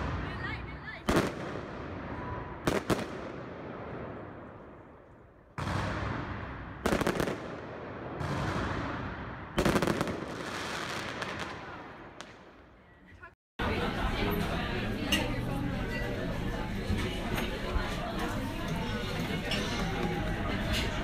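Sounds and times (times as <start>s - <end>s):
fireworks banging: 0.0s - 12.6s
rumbling echo: 0.0s - 12.7s
crackling firework bangs: 1.1s - 12.6s.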